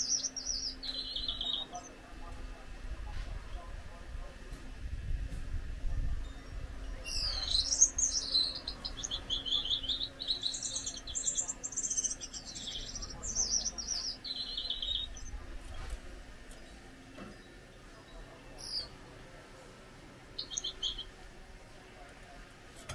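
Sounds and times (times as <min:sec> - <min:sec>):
finch singing high trills: 0:00.0 - 0:02.0, 0:06.3 - 0:15.4, 0:17.4 - 0:19.0, 0:20.3 - 0:21.2.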